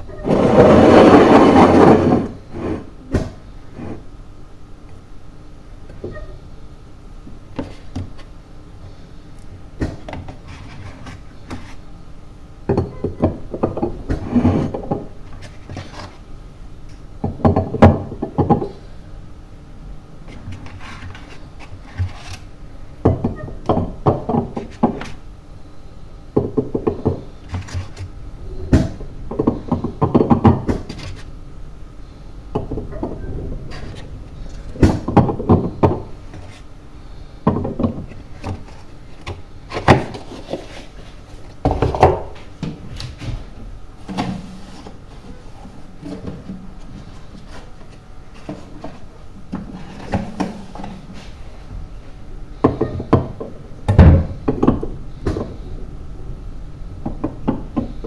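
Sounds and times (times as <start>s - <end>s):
objects knocking and clattering: 12.7s - 16.2s, 17.2s - 18.8s, 23.0s - 25.2s, 26.4s - 28.1s, 28.7s - 31.3s, 32.5s - 36.7s, 37.4s - 51.4s, 52.6s - 55.8s, 57.0s - 58.0s.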